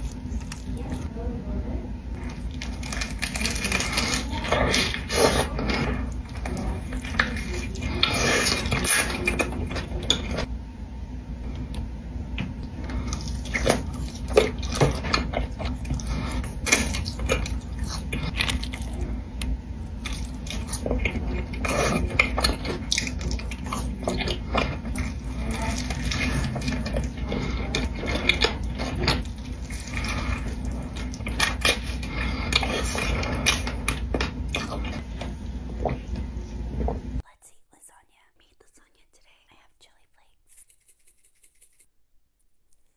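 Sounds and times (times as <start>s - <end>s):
steady low hum: 0.0s - 41.9s
eating crunches: 2.2s - 10.5s, 12.8s - 35.0s.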